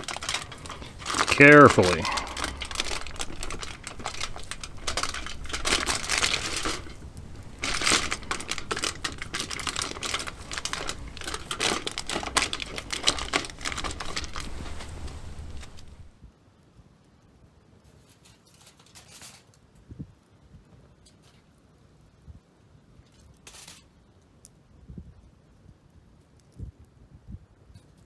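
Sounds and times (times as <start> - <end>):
crinkling and clicking handling noises: 0.0 - 16.1.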